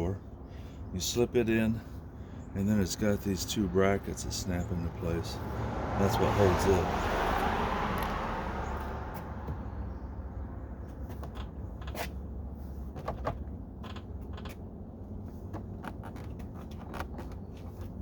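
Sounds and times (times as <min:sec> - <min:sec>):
plastic trim panel creaking: 0:13.0 - 0:14.7.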